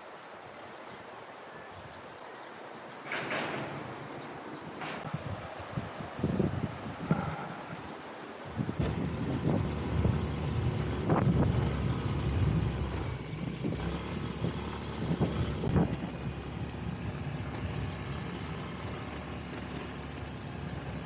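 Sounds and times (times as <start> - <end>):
road rumble: 3.0 - 21.0
wind on microphone: 5.0 - 18.0
vehicle engine running: 8.8 - 21.0.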